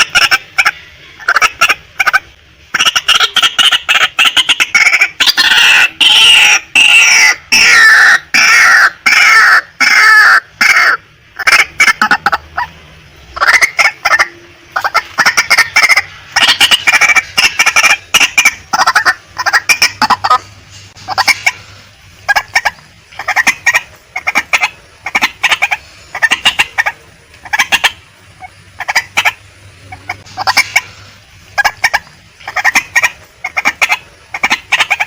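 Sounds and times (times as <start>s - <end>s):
waterhen calling harshly: 0.0s - 35.0s.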